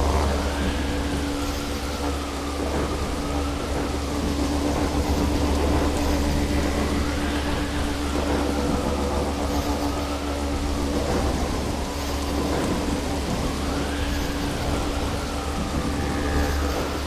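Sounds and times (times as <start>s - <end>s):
heavy rain: 0.0s - 17.0s
wind: 0.0s - 17.0s.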